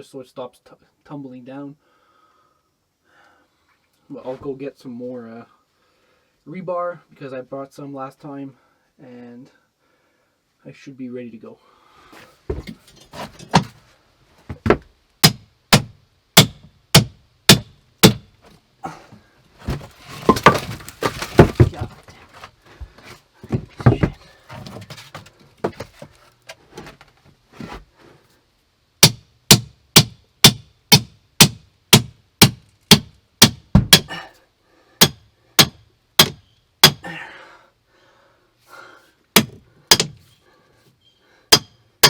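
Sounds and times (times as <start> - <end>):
irregular knocking and scraping: 12.2 - 14.9, 18.4 - 28.2.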